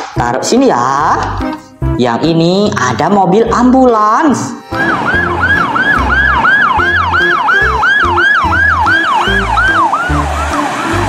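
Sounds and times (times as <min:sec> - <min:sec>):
ambulance siren yelping: 0:04.6 - 0:11.0
music with steady beat: 0:04.6 - 0:11.0.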